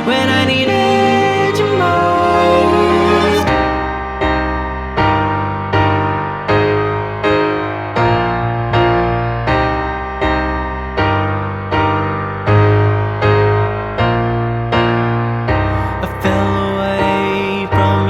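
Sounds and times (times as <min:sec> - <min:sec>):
piano chords ringing: 0:00.0 - 0:18.0.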